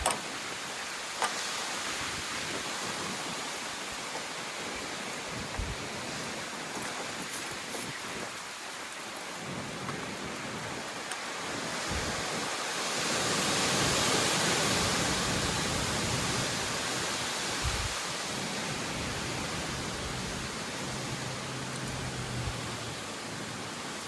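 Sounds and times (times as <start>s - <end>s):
wind buffeting microphone: 0.0s - 8.6s, 9.2s - 24.0s
strong wind rushing: 11.5s - 23.8s.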